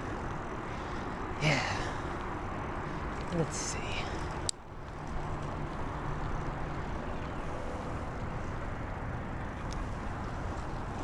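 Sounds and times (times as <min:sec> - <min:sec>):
motor traffic: 0:00.0 - 0:11.0
wind: 0:00.0 - 0:11.0.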